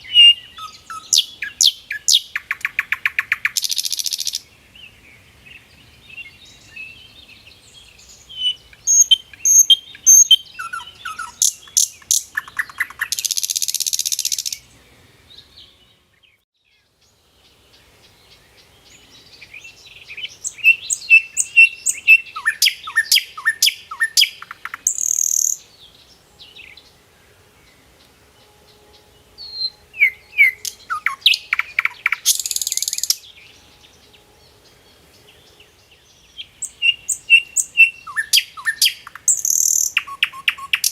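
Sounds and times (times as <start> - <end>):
bird chirping and trilling: 0.0 - 4.4, 7.9 - 14.7, 19.7 - 25.8, 28.9 - 34.7, 35.3 - 40.9.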